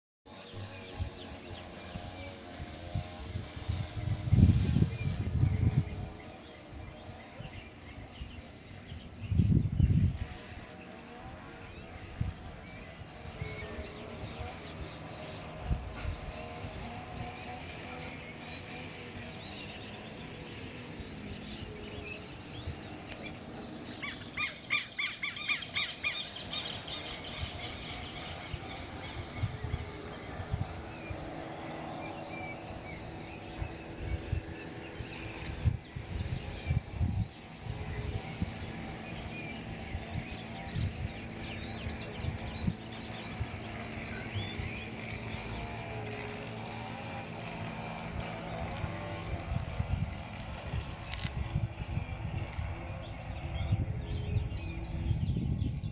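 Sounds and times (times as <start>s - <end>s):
steady high-pitched hum: 0.3s - 55.9s
wild birds chirping: 0.3s - 55.9s.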